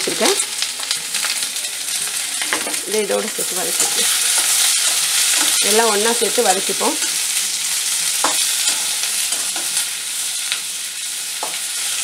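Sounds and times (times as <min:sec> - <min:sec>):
vegetables sizzling in hot oil: 0:00.0 - 0:12.0
metal spatula scraping a pan: 0:06.7 - 0:12.0.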